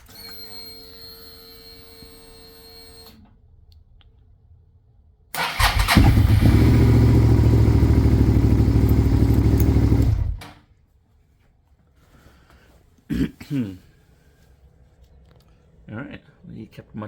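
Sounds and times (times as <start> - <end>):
starter motor cranking: 5.4 - 10.5
motorcycle engine running: 5.5 - 10.4.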